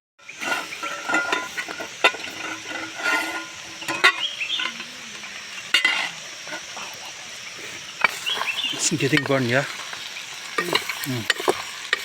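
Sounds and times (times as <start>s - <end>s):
meat sizzling while stirred: 0.2s - 12.0s.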